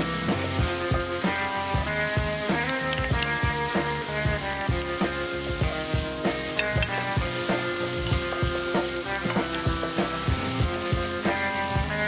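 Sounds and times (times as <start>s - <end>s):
background music with a beat: 0.0s - 12.0s
food sizzling in a frying pan: 0.0s - 12.0s
wooden spatula stirring: 1.9s - 11.1s.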